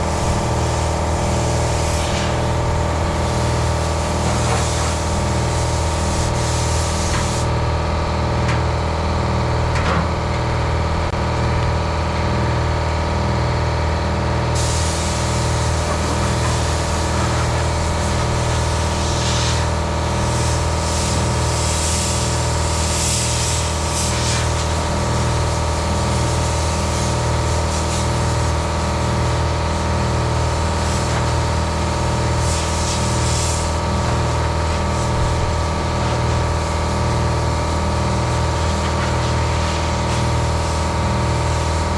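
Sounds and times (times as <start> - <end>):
air blow gun hissing: 0.0 - 7.6, 14.6 - 24.8, 30.4 - 37.5
air compressor humming: 0.0 - 41.9.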